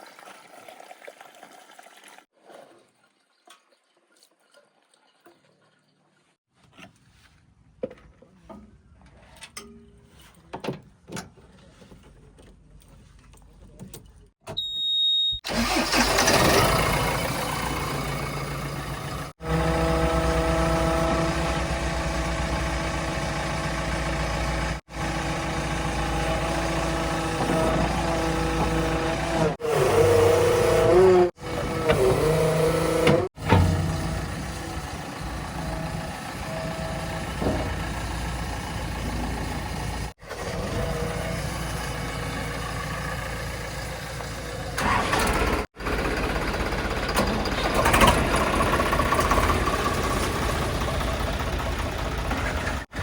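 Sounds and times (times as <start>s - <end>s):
heavy vehicle engine running: 15.5s - 53.0s.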